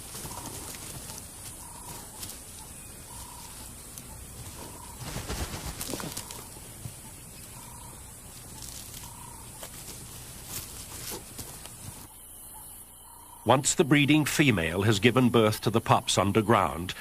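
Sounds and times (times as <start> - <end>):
dogs scratching in soil: 0.0 - 12.1
faint animal calls: 0.0 - 13.7.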